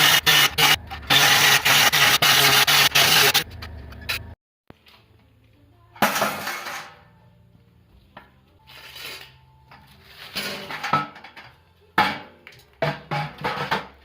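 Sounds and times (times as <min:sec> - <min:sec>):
metal clattering and scraping: 0:06.0 - 0:07.0, 0:08.7 - 0:14.0.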